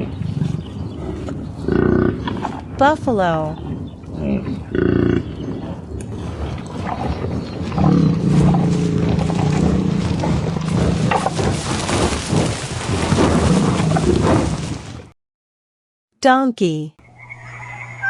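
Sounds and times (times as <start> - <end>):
buffalo mooing: 6.2 - 11.7.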